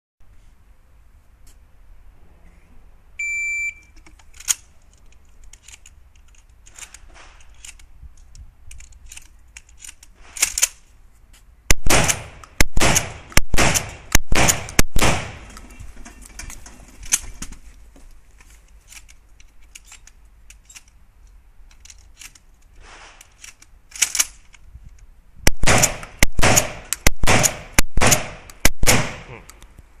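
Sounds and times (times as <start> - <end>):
short electronic beep: 3.2 - 3.9
shotgun shots: 11.7 - 15.5, 25.5 - 29.4.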